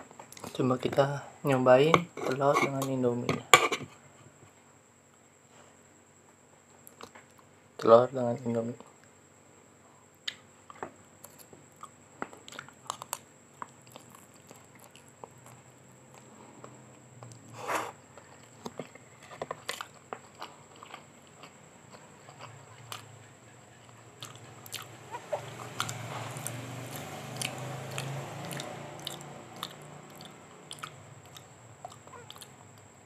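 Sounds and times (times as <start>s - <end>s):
chewing noodles: 18.1s - 32.9s.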